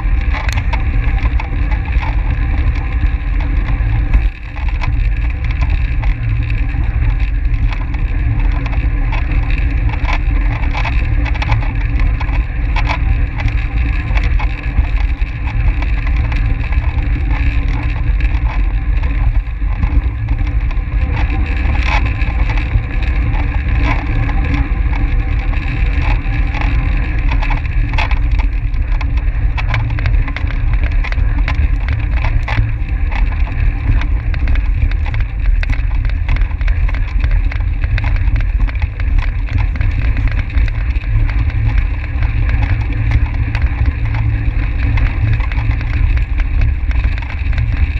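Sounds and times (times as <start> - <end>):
tyre and drivetrain hum: 0.0 - 47.9
wind buffeting microphone: 0.0 - 47.9.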